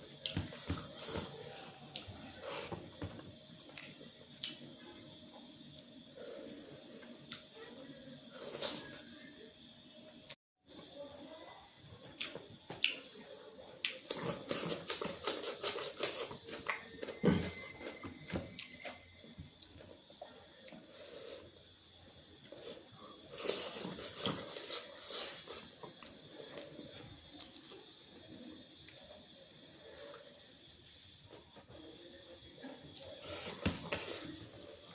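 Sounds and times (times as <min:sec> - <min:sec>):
chewing and crunching: 0:12.2 - 0:21.3.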